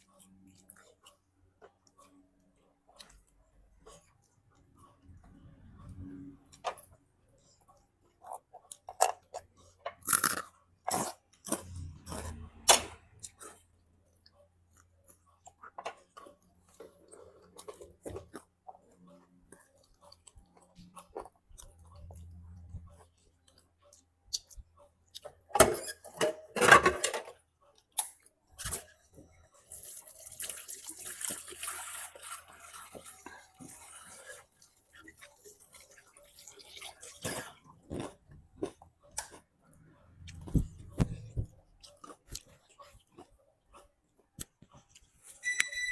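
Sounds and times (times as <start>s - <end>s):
person chewing crunchy food: 0.0s - 25.5s, 27.3s - 45.4s.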